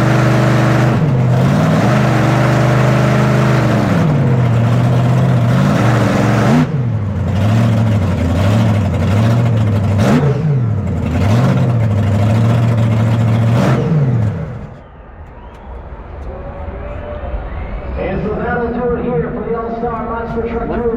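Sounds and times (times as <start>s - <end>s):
truck engine revving: 0.0s - 14.9s.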